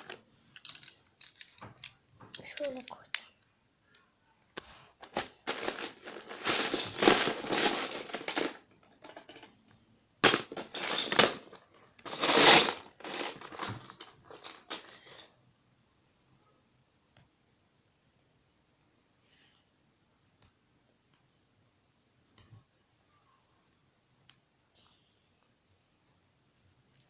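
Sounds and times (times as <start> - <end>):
plastic bricks rattling: 0.0 - 3.3, 5.0 - 9.6, 10.2 - 15.2.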